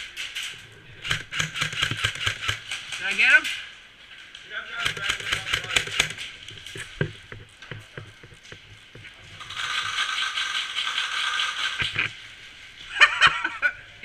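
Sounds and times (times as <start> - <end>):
airsoft gun mechanical rattling: 0.0 - 3.6, 4.8 - 12.2
airsoft gun clicks: 1.0 - 3.0, 4.8 - 6.8.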